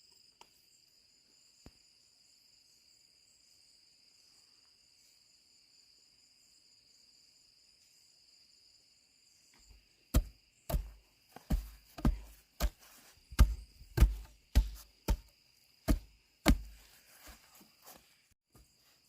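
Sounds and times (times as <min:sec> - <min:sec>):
crickets chirring: 0:00.0 - 0:19.0
heavy blows with deep thuds: 0:10.2 - 0:15.3, 0:15.9 - 0:16.8.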